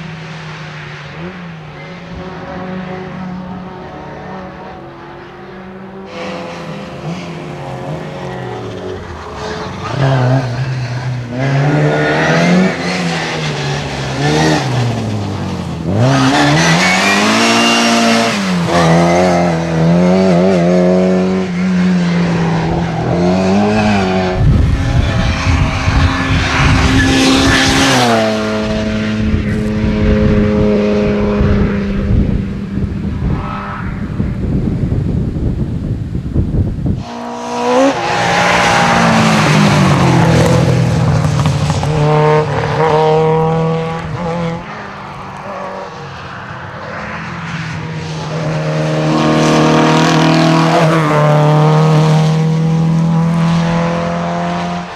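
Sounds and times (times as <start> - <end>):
rally car engine revving: 0.0 - 54.9.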